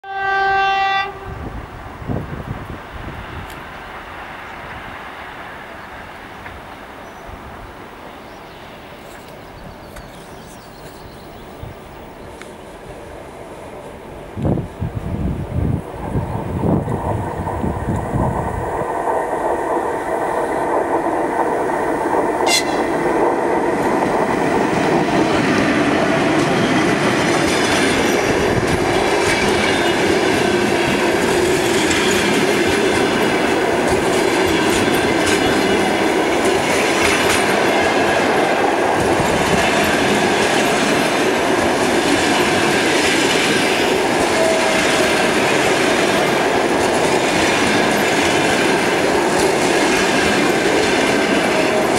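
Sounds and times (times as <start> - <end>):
train wheels clattering on rails: 15.6 - 51.9.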